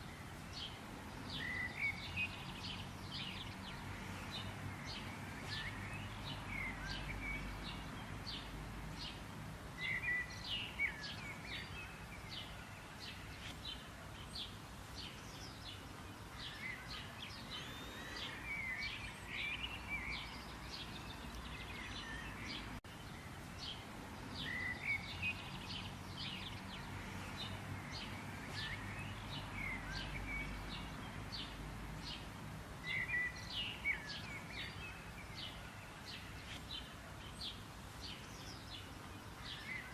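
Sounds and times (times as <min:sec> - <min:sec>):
birds chirping and singing: 0:09.8 - 0:39.9.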